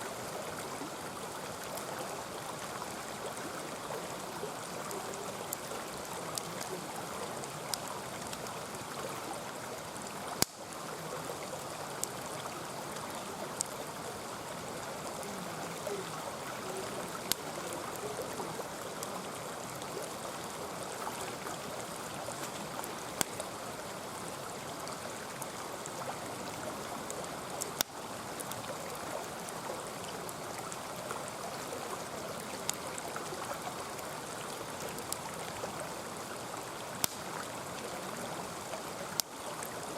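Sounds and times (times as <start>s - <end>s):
stream flowing and gurgling: 0.0s - 39.9s
campfire pops and crackles: 1.6s - 26.0s, 26.8s - 31.6s, 32.4s - 35.7s, 36.5s - 37.5s, 38.7s - 39.8s.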